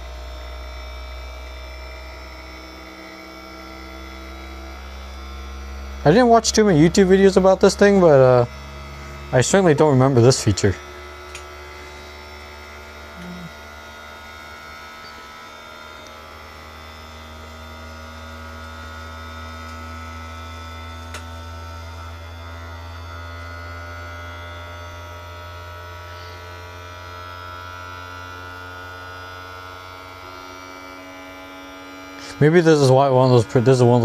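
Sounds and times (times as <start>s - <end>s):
low electrical hum: 0.0s - 34.0s
steady higher tones: 4.4s - 13.5s, 32.1s - 34.0s.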